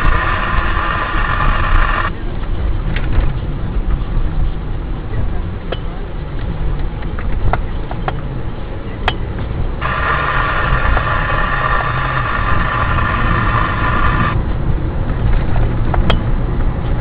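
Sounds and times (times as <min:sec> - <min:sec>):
loud steady high tone: 0:00.0 - 0:02.1, 0:09.8 - 0:14.4
vehicle engine and road noise: 0:00.0 - 0:17.0.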